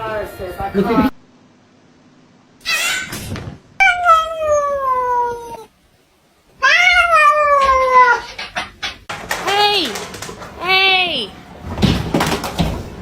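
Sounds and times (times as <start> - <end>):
cat meowing: 3.8 - 5.7, 6.6 - 8.3.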